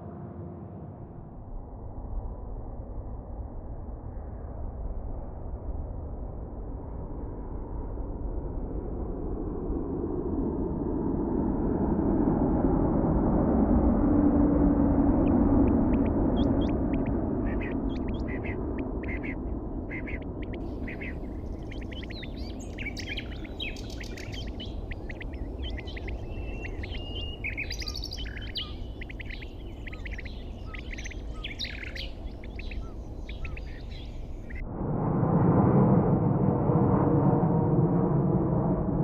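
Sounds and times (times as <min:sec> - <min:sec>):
low rumble: 0:09.7 - 0:39.0
birds chirping and trilling: 0:15.2 - 0:34.6.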